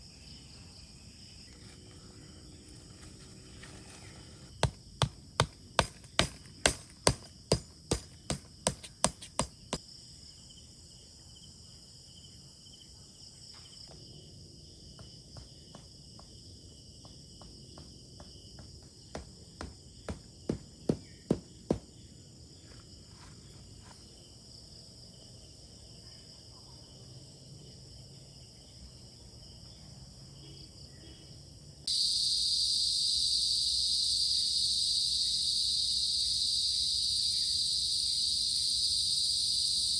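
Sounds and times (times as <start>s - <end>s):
crickets and insects chirring: 0.0s - 39.9s
sharp knocks: 4.6s - 9.8s.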